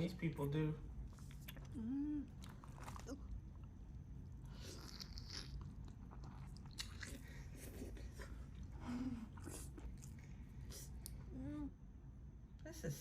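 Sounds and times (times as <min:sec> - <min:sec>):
person chewing and crunching: 0:01.1 - 0:10.9.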